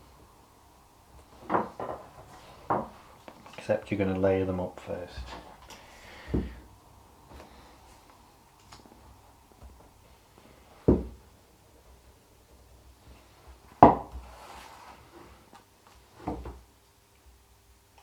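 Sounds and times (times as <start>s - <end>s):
knocks on a tabletop: 13.8s - 14.1s.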